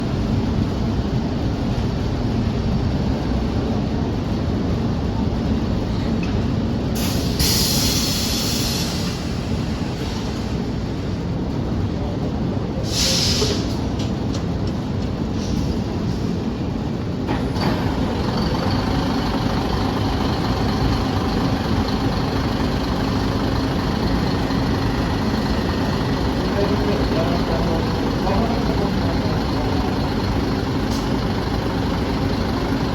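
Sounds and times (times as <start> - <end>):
bus diesel engine rumble: 0.0 - 32.9
loud air brake hisses: 7.0 - 10.6, 12.8 - 13.8, 15.3 - 16.4
engine idling hum and whine: 13.6 - 32.9.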